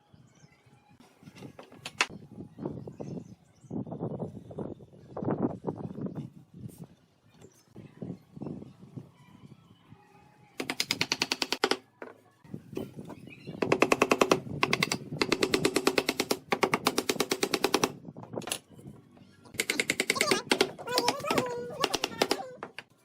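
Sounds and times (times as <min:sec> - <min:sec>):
power tool hammering rapidly: 0:10.6 - 0:11.8, 0:13.6 - 0:17.9, 0:19.6 - 0:22.4.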